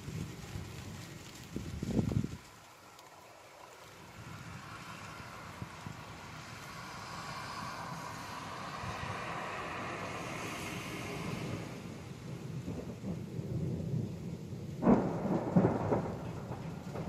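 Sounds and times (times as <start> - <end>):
rain hiss: 0.0 - 17.0
thunder rumbling: 0.0 - 17.0
loud thunderclap: 8.0 - 17.0.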